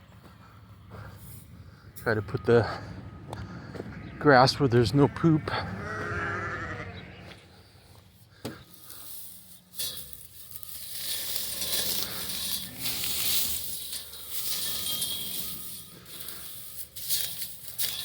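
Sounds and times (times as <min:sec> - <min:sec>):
dry hay rustling and crackling: 0:06.2 - 0:18.0.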